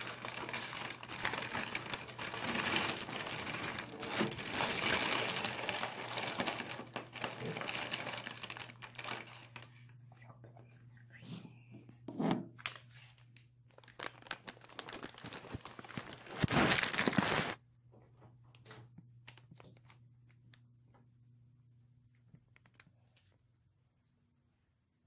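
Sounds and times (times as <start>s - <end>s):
plastic bag crinkling: 0.0s - 10.4s, 12.6s - 17.6s, 22.5s - 23.4s
low steady hum: 0.0s - 16.9s, 17.6s - 25.0s.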